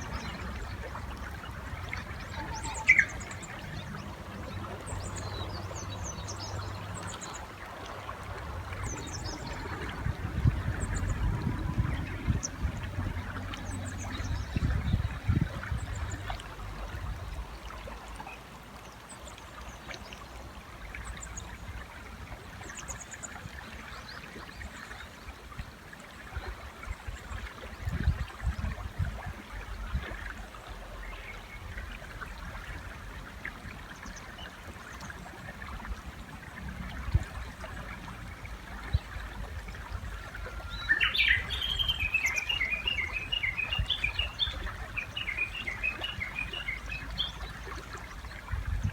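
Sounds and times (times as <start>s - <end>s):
river water flowing: 0.0s - 48.9s
bush warbler calling: 2.2s - 3.7s, 40.6s - 47.5s
small birds chirping: 40.7s - 47.5s.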